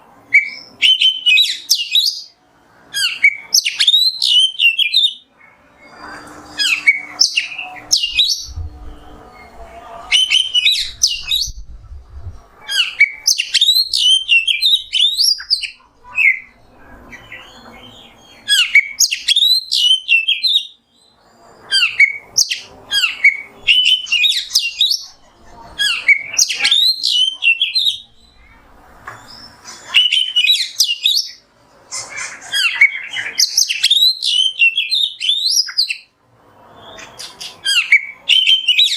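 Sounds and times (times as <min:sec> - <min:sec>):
bird singing whistles and chirps: 0:00.3 - 0:11.7, 0:12.6 - 0:28.6, 0:29.2 - 0:31.4, 0:32.1 - 0:36.1, 0:36.7 - 0:38.9.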